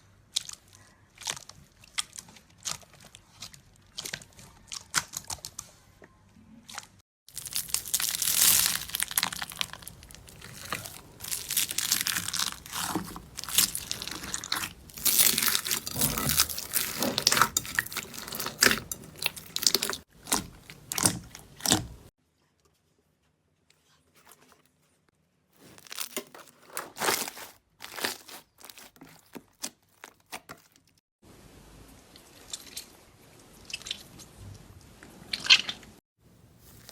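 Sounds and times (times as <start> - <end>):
slime crackling and crunching: 0.3 - 5.6, 7.3 - 22.1, 25.6 - 31.0.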